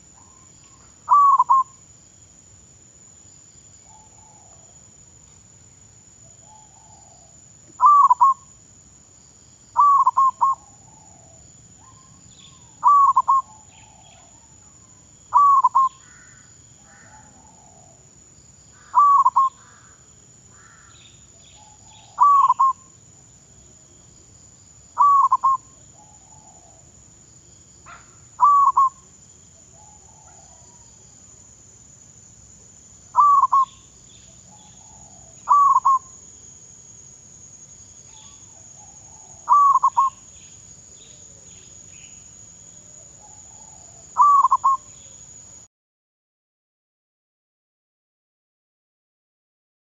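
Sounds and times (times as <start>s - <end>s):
faint bird calls: 0.0s - 1.8s, 3.8s - 4.7s, 6.4s - 8.5s, 9.7s - 18.1s, 18.7s - 23.0s, 24.9s - 27.0s, 27.8s - 29.1s, 29.7s - 30.9s, 33.1s - 36.2s, 38.1s - 42.2s, 43.0s - 45.2s
dove cooing: 1.1s - 1.7s, 6.4s - 8.4s, 9.8s - 12.0s, 12.8s - 14.3s, 15.3s - 16.0s, 18.9s - 19.6s, 21.6s - 22.8s, 25.0s - 26.9s, 27.9s - 29.0s, 29.7s - 30.8s, 33.2s - 33.8s, 34.5s - 36.1s, 38.2s - 40.2s, 43.2s - 44.9s.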